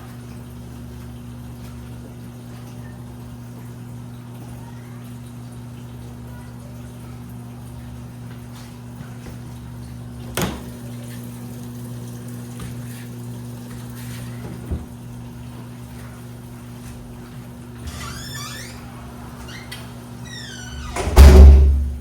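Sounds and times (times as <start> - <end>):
washing machine motor hum: 0.0 - 22.0
dull thump: 21.0 - 22.0.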